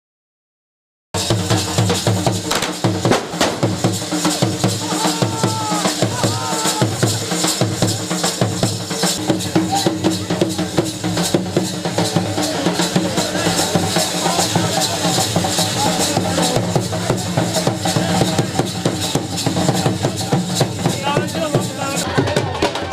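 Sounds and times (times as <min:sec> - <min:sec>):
dhol drums beaten fast: 0:01.2 - 0:22.9.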